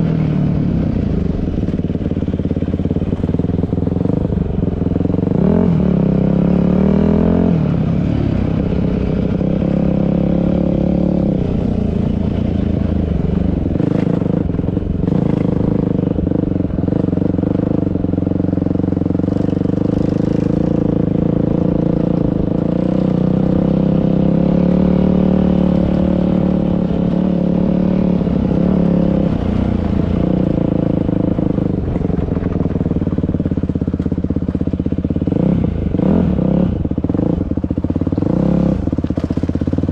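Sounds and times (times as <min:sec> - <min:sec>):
dirt bike engine revving: 0:05.0 - 0:33.0.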